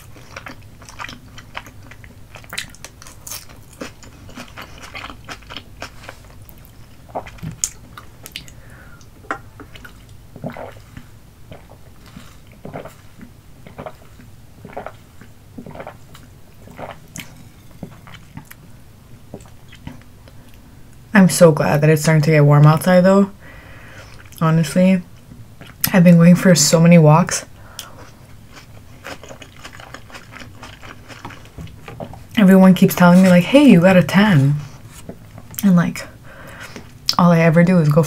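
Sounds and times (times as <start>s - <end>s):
chewing with wet mouth clicks: 0.0s - 8.6s, 28.5s - 32.1s.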